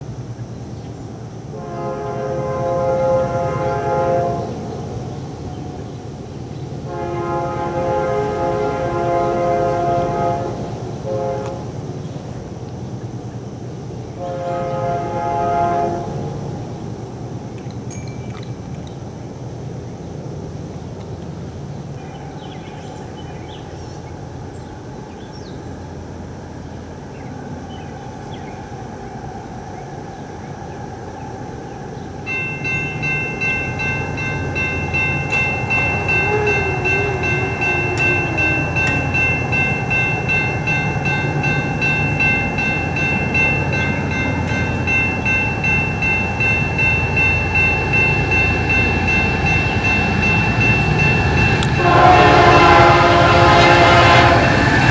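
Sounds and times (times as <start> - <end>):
freight train rumbling: 0.0 - 54.9
high-pitched ringing: 32.3 - 54.9.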